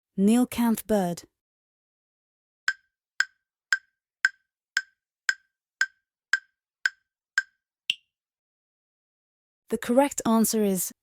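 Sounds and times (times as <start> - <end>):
higher-pitched tick: 2.7 - 8.0
countdown timer ticks: 2.7 - 8.1.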